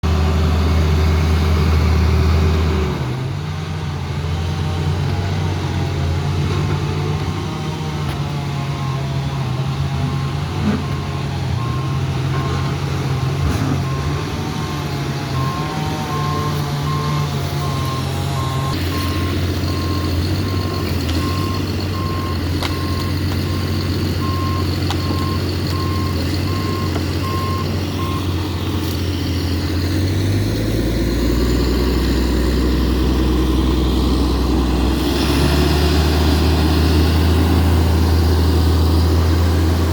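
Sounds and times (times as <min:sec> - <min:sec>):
heavy diesel engine running: 0:00.0 - 0:39.9
reversing alarm beeping: 0:08.6 - 0:12.8, 0:13.7 - 0:29.0.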